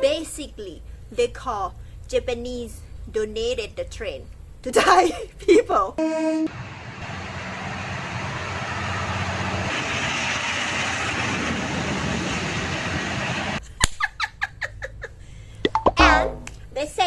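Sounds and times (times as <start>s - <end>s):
train rumbling: 6.5s - 13.6s.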